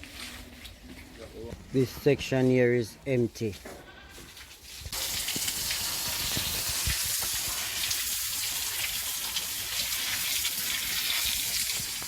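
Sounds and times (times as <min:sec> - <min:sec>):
running water hiss: 0:04.6 - 0:12.0.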